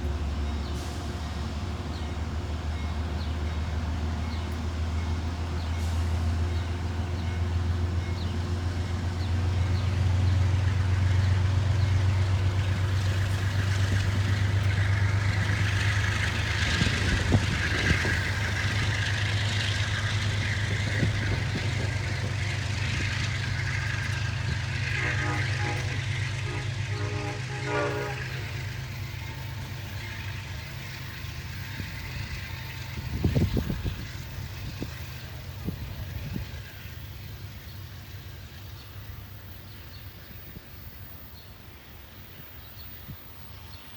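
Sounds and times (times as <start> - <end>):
diesel train rumbling: 0.0 - 43.9
wheels hissing on rail: 0.0 - 43.9.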